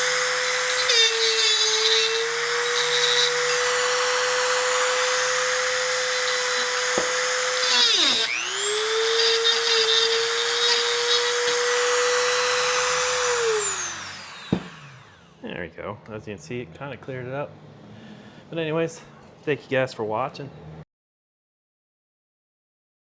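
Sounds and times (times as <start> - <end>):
power tool motor whine: 0.0 - 15.4.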